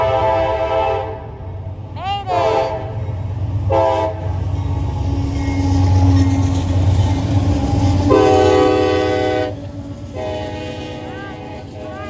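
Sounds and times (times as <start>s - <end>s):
locomotive air horn blasts: 0.0s - 1.2s, 2.3s - 2.9s, 3.7s - 4.3s, 8.1s - 12.0s
train rumble: 0.0s - 12.0s.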